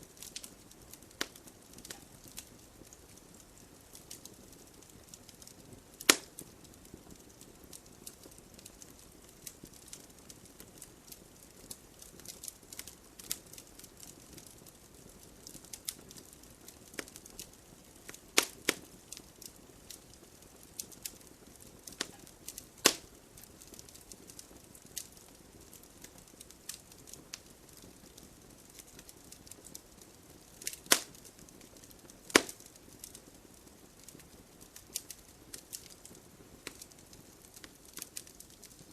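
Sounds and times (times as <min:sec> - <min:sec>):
flame hissing: 0:00.0 - 0:38.9
wood fire crackling: 0:00.0 - 0:38.9
loud pops from wood: 0:06.0 - 0:06.3, 0:18.4 - 0:18.6, 0:22.0 - 0:23.1, 0:30.6 - 0:31.2, 0:32.3 - 0:32.7.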